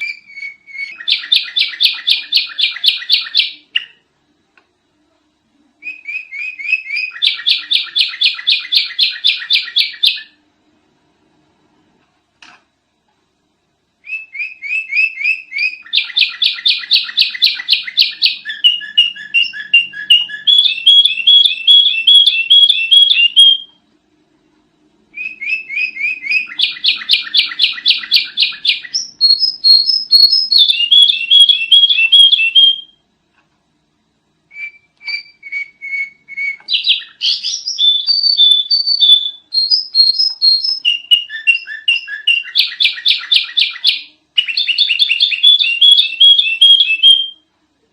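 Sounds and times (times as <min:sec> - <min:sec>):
bird chirping high notes: 0:14.1 - 0:23.7.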